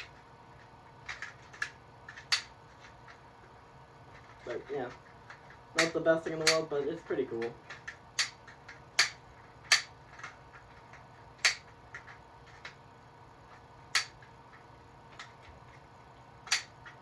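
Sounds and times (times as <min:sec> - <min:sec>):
plastic toy gun clicking: 0:01.1 - 0:02.5, 0:05.8 - 0:06.7, 0:07.4 - 0:10.4, 0:11.4 - 0:12.8, 0:13.9 - 0:14.2, 0:16.4 - 0:17.0.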